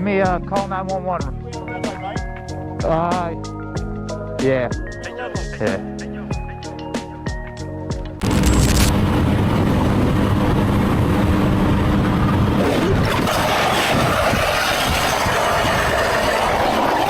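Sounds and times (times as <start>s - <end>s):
wind noise: 8.2s - 17.0s.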